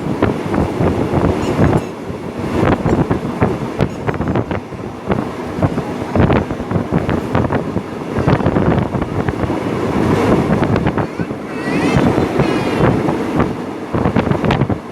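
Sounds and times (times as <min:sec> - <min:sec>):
train wheels rattling on track: 0:00.0 - 0:14.9
wind buffeting microphone: 0:00.0 - 0:14.9.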